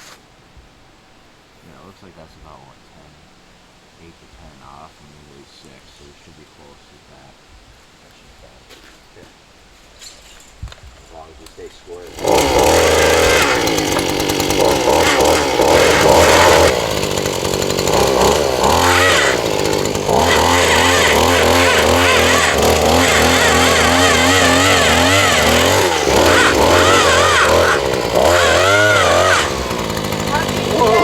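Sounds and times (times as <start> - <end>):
post hole auger engine running: 12.0 - 31.0.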